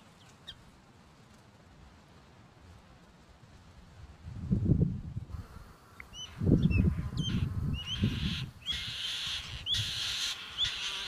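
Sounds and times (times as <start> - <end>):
wind rumble on microphone: 0.6 - 10.8
small bird chirping: 6.0 - 11.0.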